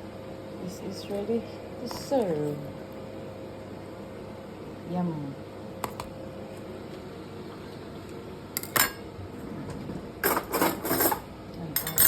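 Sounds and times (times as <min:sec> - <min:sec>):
cutlery clinking on plates: 0:11.8 - 0:12.0.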